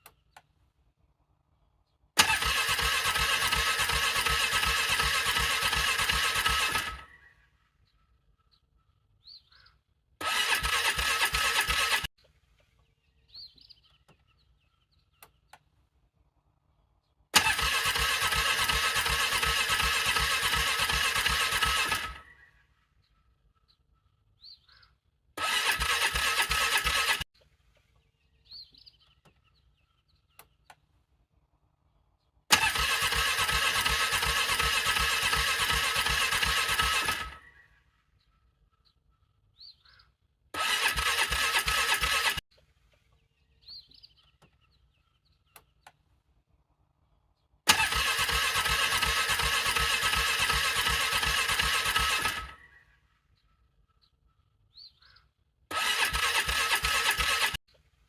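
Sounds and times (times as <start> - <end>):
engine starter cranking: 2.2 - 7.2, 10.2 - 12.1, 17.3 - 22.3, 25.4 - 27.3, 32.5 - 37.5, 40.6 - 42.5, 47.7 - 52.7, 55.7 - 57.6.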